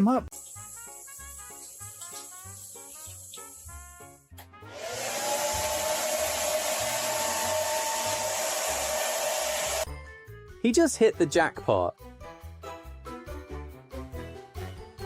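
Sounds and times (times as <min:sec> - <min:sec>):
background music: 0:00.0 - 0:15.0
small electric motor whine: 0:04.7 - 0:09.9.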